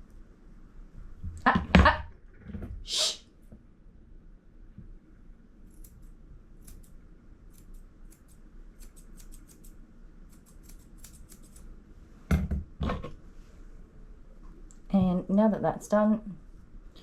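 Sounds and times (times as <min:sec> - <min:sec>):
scissors snipping hair: 0:05.6 - 0:11.7.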